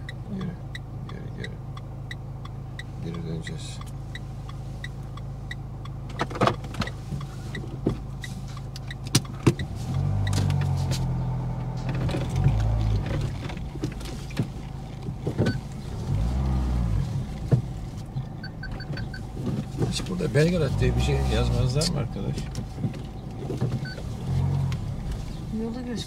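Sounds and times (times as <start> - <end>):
car engine humming: 0.0 - 26.0
knocks and clicks: 8.6 - 15.6.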